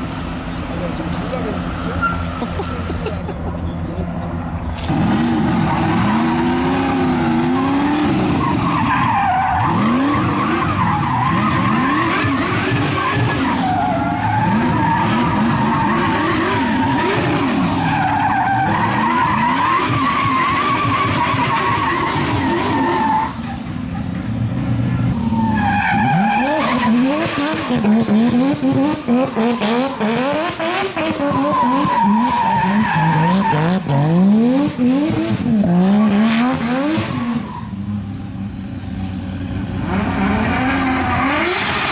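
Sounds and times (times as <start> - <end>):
car engine revving: 0.0 - 41.9
tyres squealing: 28.9 - 34.2.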